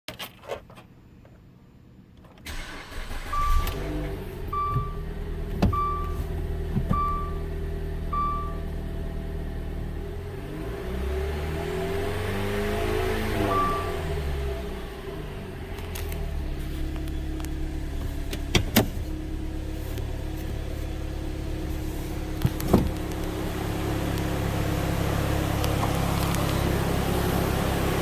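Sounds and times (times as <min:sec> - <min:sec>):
car engine starting and idling: 0:02.4 - 0:28.0
car warning chime beeping: 0:02.9 - 0:08.8, 0:13.4 - 0:14.4.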